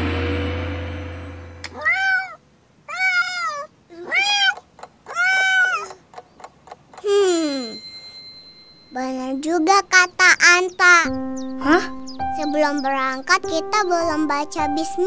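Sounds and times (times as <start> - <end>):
low ringing tone: 0.0 - 1.8, 7.4 - 9.1
cartoon cat meowing: 1.7 - 6.0.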